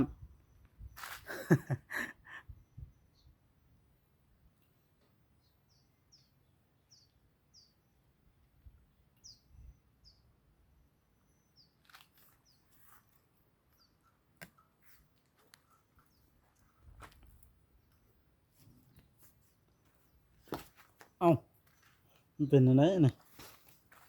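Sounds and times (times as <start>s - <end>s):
small bird chirping: 2.4s - 3.4s, 4.6s - 10.4s, 11.1s - 23.1s.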